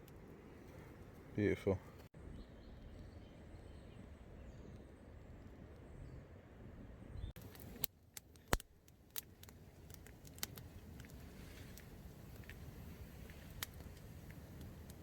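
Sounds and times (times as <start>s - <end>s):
campfire crackling: 0.0s - 2.2s, 6.6s - 15.0s.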